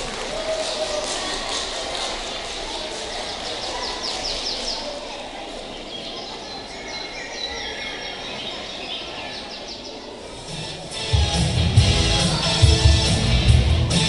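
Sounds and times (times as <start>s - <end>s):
birds chirping and trilling: 2.7s - 10.6s.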